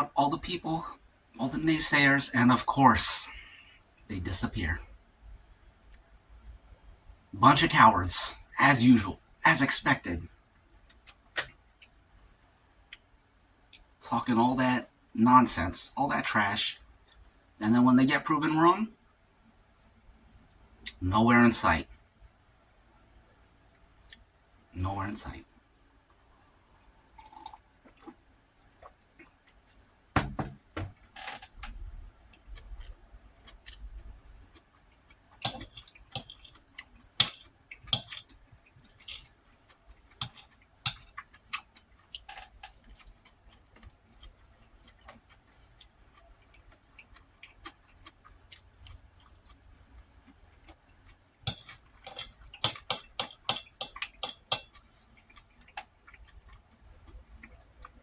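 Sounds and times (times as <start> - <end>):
utensil clicking against dish: 35.4 - 36.6, 37.2 - 39.3, 40.2 - 41.4, 51.4 - 54.8.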